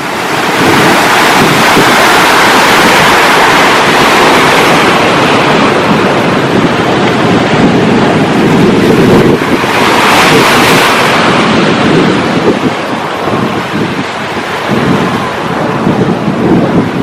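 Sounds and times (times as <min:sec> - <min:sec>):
waves breaking: 0:00.0 - 0:17.0
wind buffeting microphone: 0:00.0 - 0:17.0.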